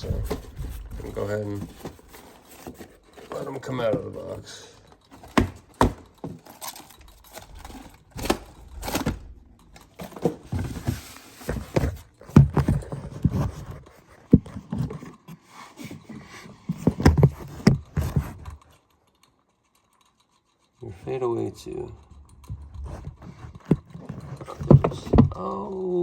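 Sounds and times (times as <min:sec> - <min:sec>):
box being handled: 0:00.0 - 0:18.6, 0:22.5 - 0:25.6.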